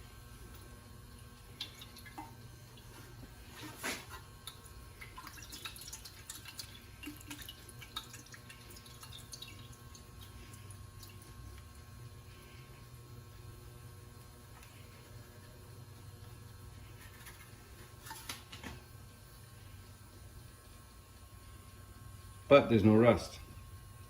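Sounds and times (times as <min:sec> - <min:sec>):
steady low hum: 0:00.0 - 0:24.0
liquid dripping into plastic tray: 0:01.5 - 0:02.9, 0:04.4 - 0:11.8.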